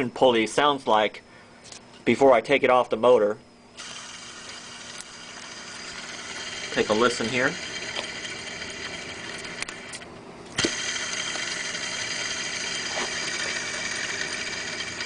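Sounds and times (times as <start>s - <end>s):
pulley bearing whirring: 3.8s - 15.0s.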